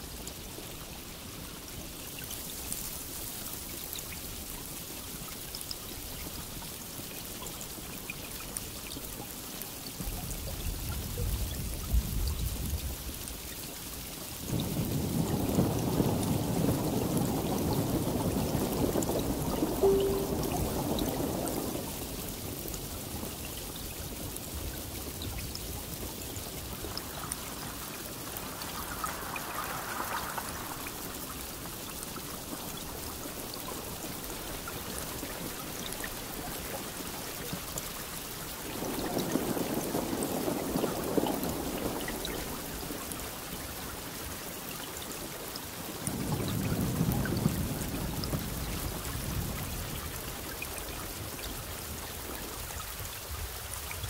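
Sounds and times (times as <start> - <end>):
steady rain falling: 0.0 - 54.0
thunder rolling: 14.6 - 21.9.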